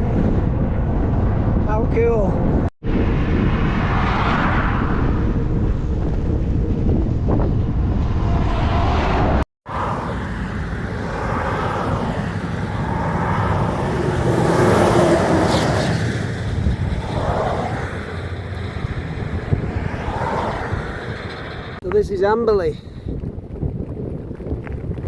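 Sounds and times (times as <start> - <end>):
wind and road noise: 0.0 - 25.0
road traffic passing: 7.8 - 23.1.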